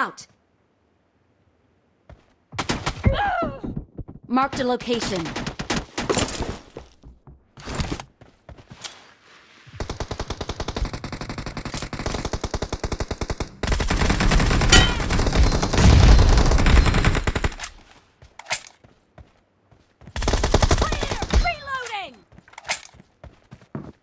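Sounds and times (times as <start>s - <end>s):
video game automatic gunfire: 9.8s - 17.6s.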